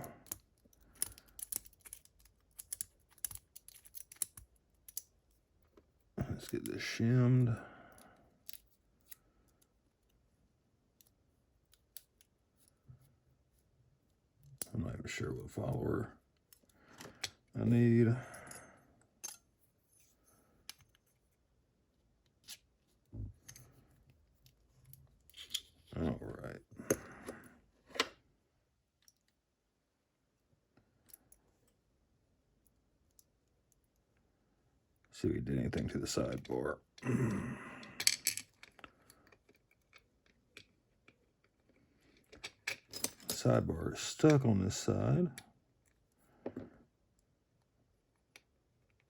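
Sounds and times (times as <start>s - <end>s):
faint lock parts clicking: 0.2s - 5.2s.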